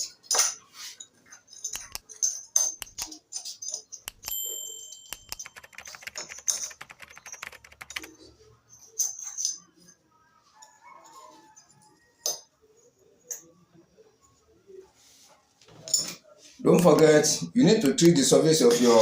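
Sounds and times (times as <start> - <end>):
small metal parts clicking: 1.2 - 4.4
ringing metallic clink: 1.5 - 5.5.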